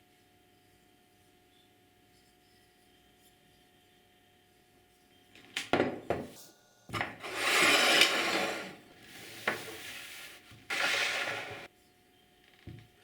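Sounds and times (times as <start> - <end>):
hand scraping a workpiece: 7.0 - 11.7.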